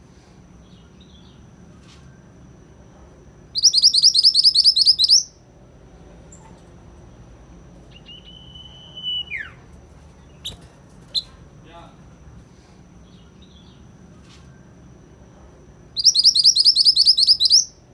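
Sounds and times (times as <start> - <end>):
songbird trilling: 3.5 - 5.3, 7.9 - 11.3, 16.0 - 17.8
faint bird chirps: 3.5 - 5.4, 7.8 - 11.4, 15.9 - 17.9
thin steady whistled note: 7.9 - 9.6.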